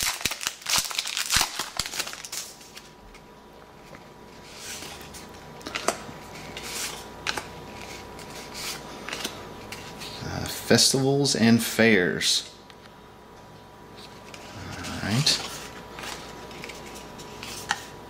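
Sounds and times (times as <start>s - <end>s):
trading cards rustling: 0.0s - 3.0s, 3.8s - 10.2s, 14.0s - 17.9s.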